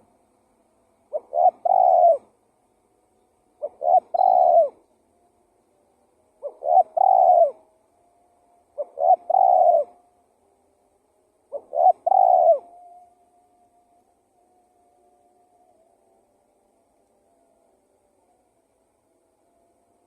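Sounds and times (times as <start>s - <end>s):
dove cooing: 1.0s - 2.4s, 3.5s - 4.9s, 6.2s - 7.8s, 8.6s - 10.2s, 11.4s - 13.3s.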